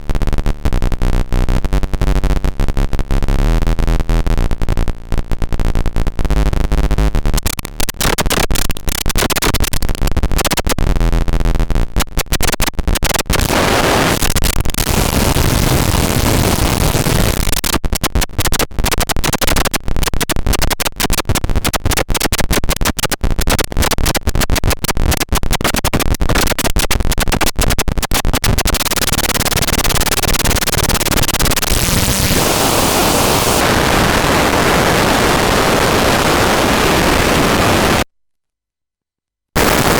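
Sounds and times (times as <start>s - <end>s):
harsh chaotic electronic noise: 7.3s - 10.9s, 11.9s - 38.0s, 39.6s - 39.9s.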